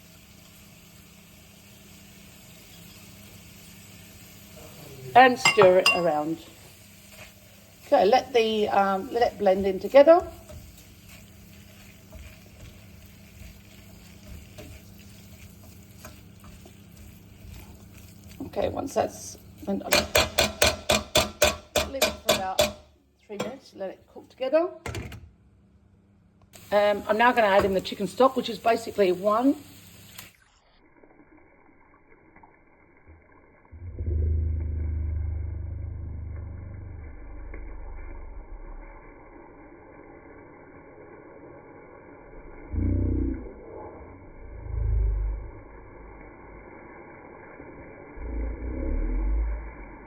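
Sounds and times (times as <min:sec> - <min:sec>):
food sizzling in a pot: 0:00.0 - 0:22.9, 0:26.6 - 0:33.7, 0:37.9 - 0:43.5, 0:45.4 - 0:50.0
low rumbling boil: 0:00.0 - 0:24.7, 0:26.6 - 0:50.0
stirring spoon knocks: 0:19.9 - 0:23.6.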